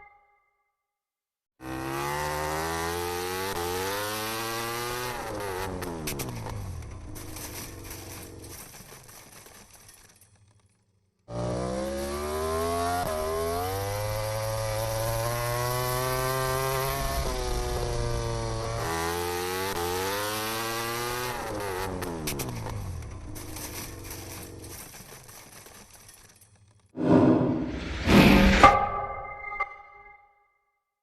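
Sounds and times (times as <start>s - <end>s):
racing motorcycle engines revving: 1.6s - 8.6s, 11.3s - 24.7s.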